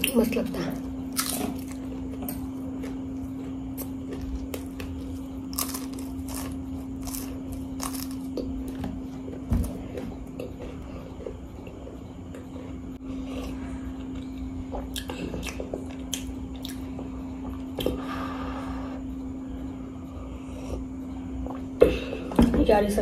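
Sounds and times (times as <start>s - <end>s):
low hum: 0.0s - 22.4s
pastry crunching: 3.6s - 8.5s
person chewing and lip-smacking: 13.4s - 16.8s.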